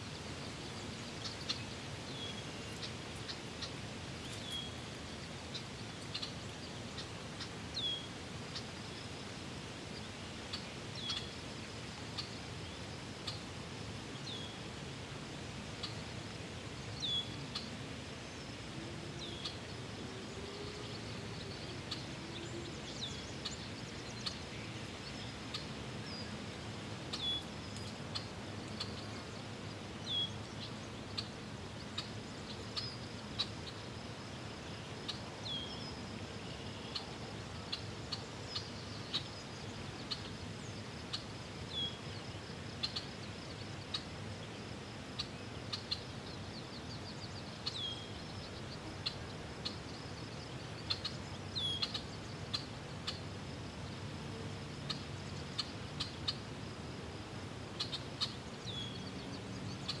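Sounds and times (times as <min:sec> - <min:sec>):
faint clicks: 0:27.7 - 0:28.2.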